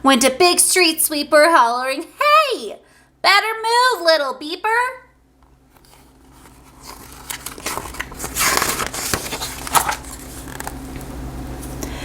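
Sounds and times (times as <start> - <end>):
faint electrical hum: 0.0 - 12.0
paper page rustling: 5.7 - 10.8.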